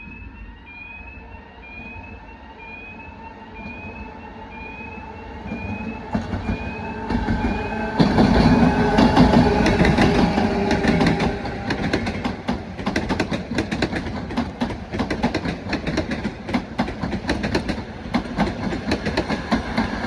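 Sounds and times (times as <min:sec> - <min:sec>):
electronic warning chirp: 0:00.0 - 0:07.8
train approaching: 0:00.0 - 0:20.0.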